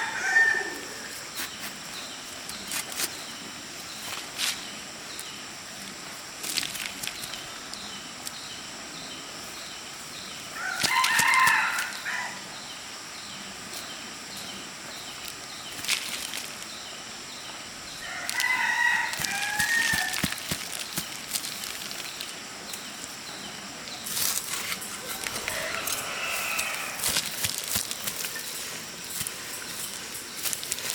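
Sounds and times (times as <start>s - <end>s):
rooster crowing: 0.0s - 1.3s, 10.6s - 12.4s, 18.0s - 20.4s, 24.7s - 27.6s.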